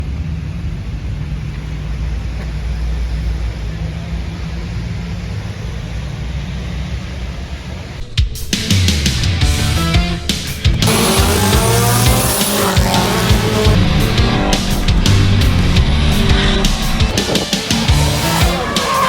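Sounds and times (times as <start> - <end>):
car engine running: 9.0 - 19.0.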